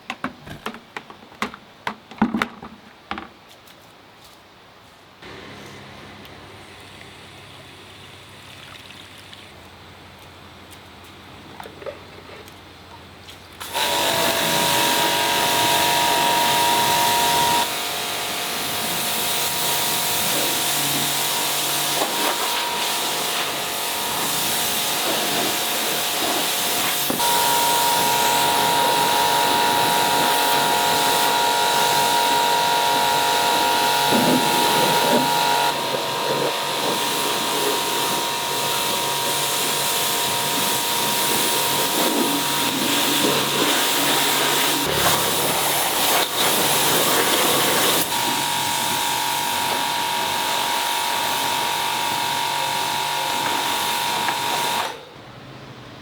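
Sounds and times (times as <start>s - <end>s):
workshop machine hissing: 13.6s - 55.1s
high machine whine: 13.7s - 54.9s.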